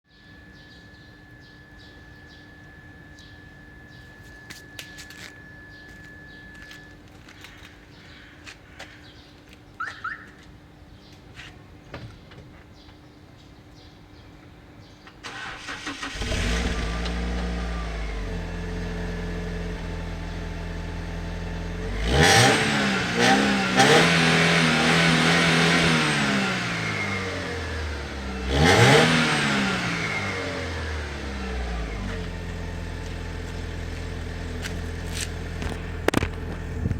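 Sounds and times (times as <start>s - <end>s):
car engine starting: 15.2s - 36.9s
car engine idling and revving: 15.3s - 36.9s.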